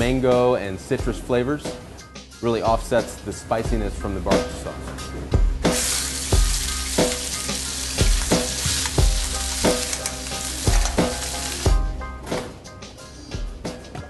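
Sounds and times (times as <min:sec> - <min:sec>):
background music with steady beat: 0:00.0 - 0:14.0
meat sizzling: 0:05.7 - 0:11.8.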